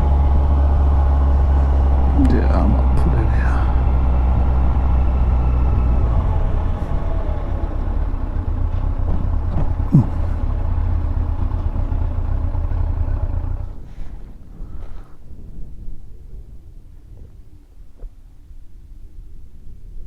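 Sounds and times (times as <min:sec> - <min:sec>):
motorcycle engine running: 0:00.0 - 0:13.8
wind and road noise: 0:00.0 - 0:17.4.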